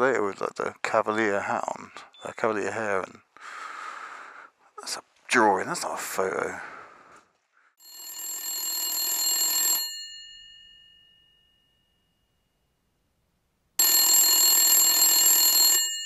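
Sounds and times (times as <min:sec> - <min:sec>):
telephone bell ringing: 0:07.8 - 0:12.1, 0:13.8 - 0:16.0.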